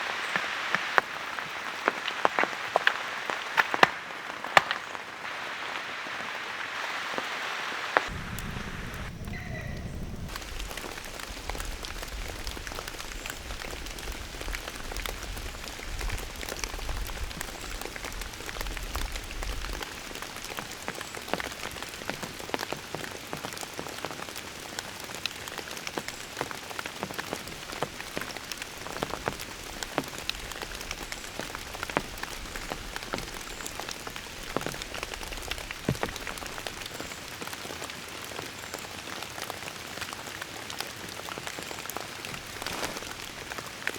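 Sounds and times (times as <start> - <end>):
sharp raindrop strikes: 0.0 - 37.9
steady rain falling: 0.0 - 43.9
low rumble: 8.1 - 12.2.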